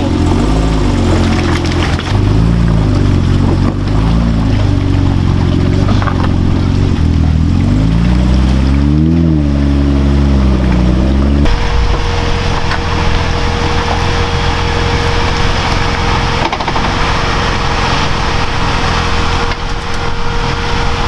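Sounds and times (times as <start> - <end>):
truck engine revving under load: 0.0 - 21.0.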